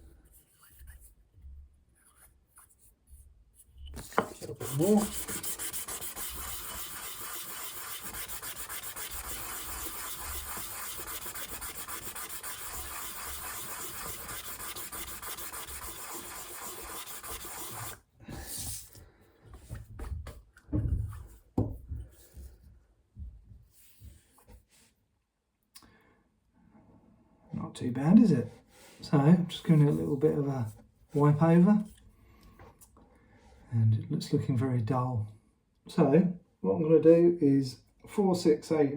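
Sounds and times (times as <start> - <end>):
wood scratching on sandpaper: 3.9 - 18.0.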